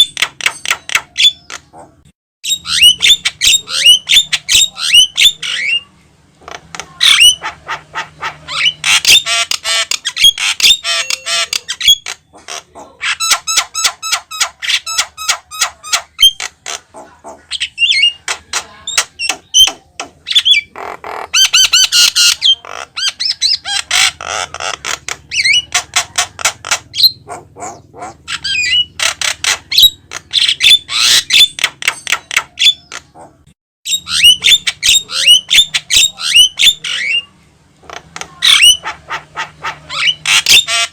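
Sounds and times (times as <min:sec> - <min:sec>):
myna bird squawking and chattering: 0:00.0 - 0:40.9.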